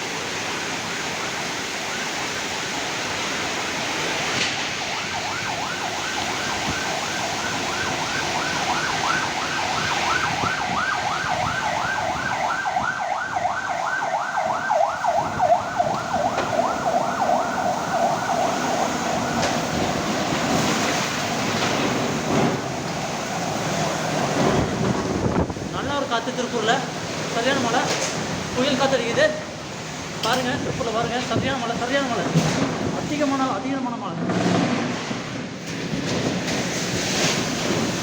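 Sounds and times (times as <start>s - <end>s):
strong wind: 0.0s - 33.3s
heavy rain: 0.0s - 38.0s
electronic siren warbling: 4.7s - 20.5s.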